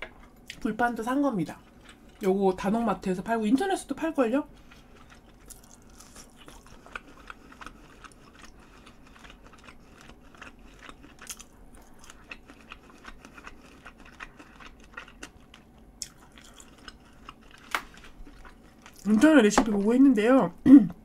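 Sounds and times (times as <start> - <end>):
person chewing with mouth clicks: 4.6 - 19.1.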